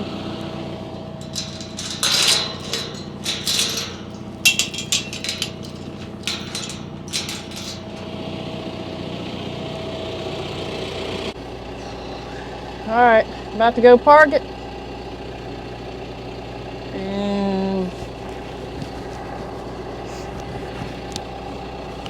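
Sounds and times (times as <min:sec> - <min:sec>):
sharp knocks and rattles: 0:01.2 - 0:08.6.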